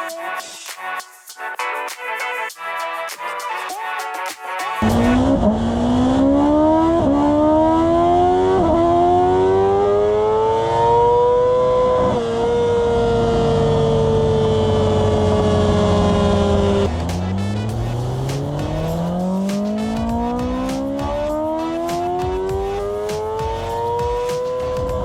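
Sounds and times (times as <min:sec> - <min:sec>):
music: 0:00.0 - 0:05.2, 0:16.9 - 0:25.0
motorcycle engine accelerating hard: 0:04.8 - 0:25.0.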